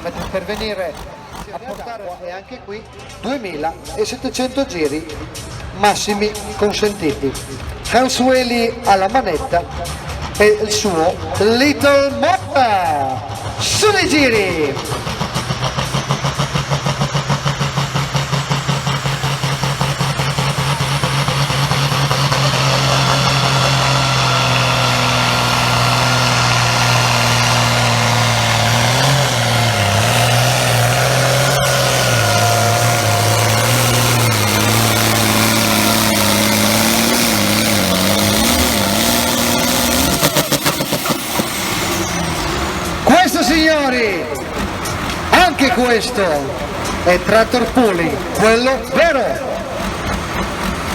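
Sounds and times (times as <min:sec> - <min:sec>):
tractor engine under load: 0:00.0 - 0:50.9.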